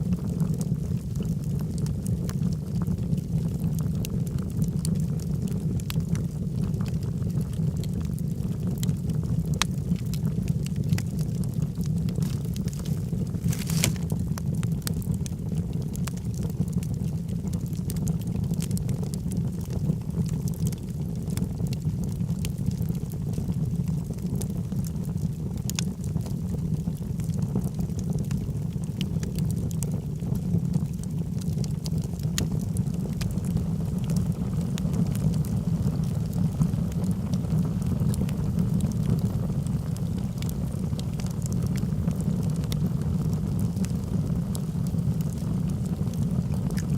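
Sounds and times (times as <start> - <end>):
fire rumbling with crackles and pops: 0.0 - 46.9.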